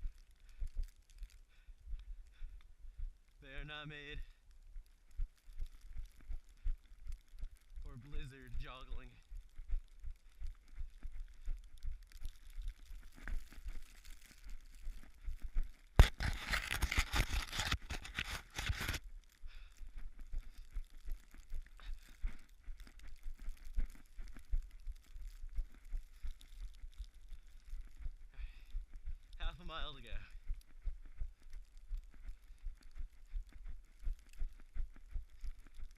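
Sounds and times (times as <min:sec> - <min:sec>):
running footsteps in snow: 0:00.0 - 0:35.9
loud rustling scrape: 0:16.0 - 0:19.0.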